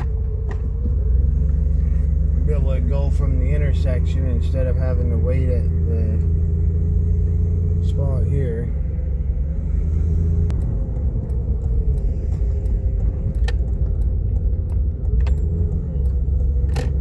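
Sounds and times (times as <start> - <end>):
vehicle engine and road noise: 0.0 - 17.0
faint ticks: 10.5 - 17.0.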